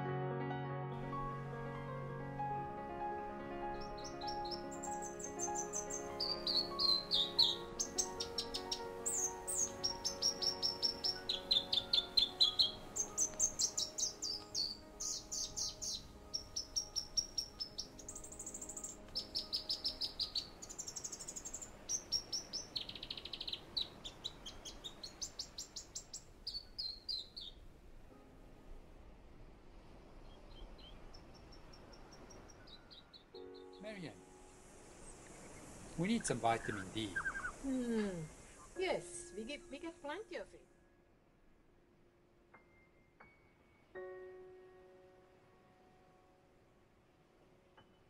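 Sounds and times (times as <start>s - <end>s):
soft background music: 0.0s - 30.2s, 31.0s - 48.0s
songbird singing trills: 3.5s - 27.7s, 30.2s - 40.1s.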